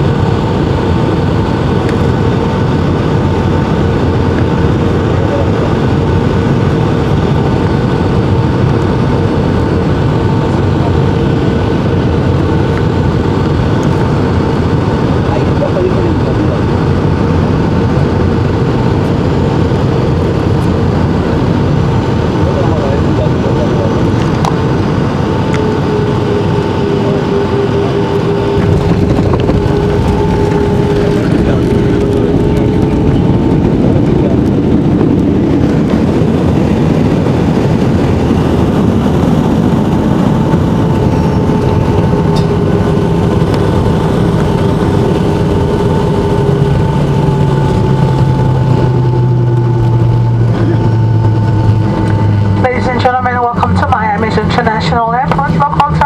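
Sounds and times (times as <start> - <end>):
airliner cabin engine rush: 0.0 - 56.0
steady tones: 16.6 - 56.0.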